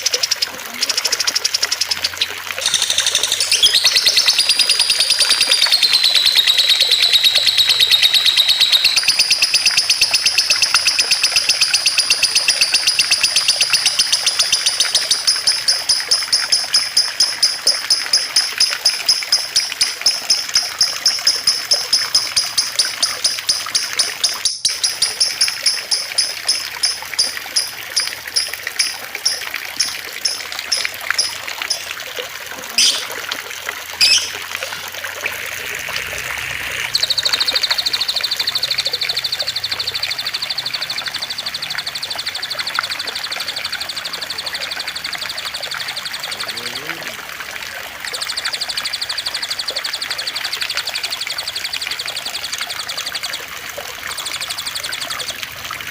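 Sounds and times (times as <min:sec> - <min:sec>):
water trickling: 0:00.0 - 0:55.9
songbird trilling and chirping: 0:01.6 - 0:31.9, 0:32.8 - 0:33.1, 0:34.0 - 0:34.4
short sweeping bird calls: 0:32.8 - 0:33.2, 0:34.0 - 0:34.4.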